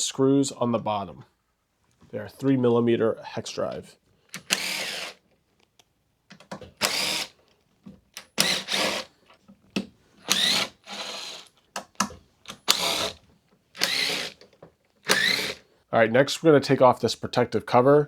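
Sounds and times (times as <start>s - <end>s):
cordless drill bursts: 4.4s - 5.2s, 6.8s - 7.4s, 8.2s - 9.2s, 10.2s - 11.5s, 12.5s - 13.2s, 13.8s - 14.4s, 15.0s - 15.6s.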